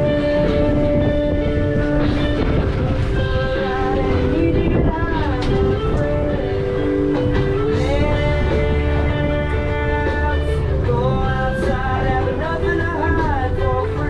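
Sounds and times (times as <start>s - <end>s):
person singing: 0.0s - 14.0s
sliding guitar: 0.0s - 14.0s.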